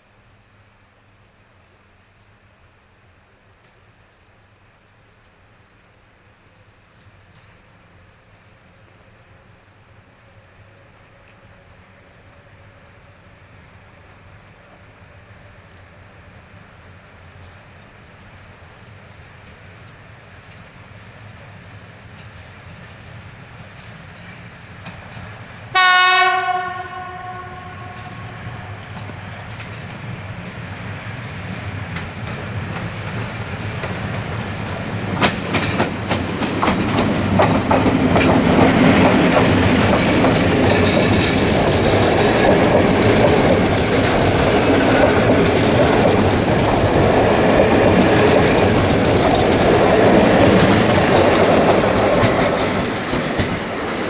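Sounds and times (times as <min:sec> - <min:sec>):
train passing: 0:06.6 - 0:54.0
train horn blast: 0:25.7 - 0:28.9
wheels clattering over rail joints: 0:31.7 - 0:54.0.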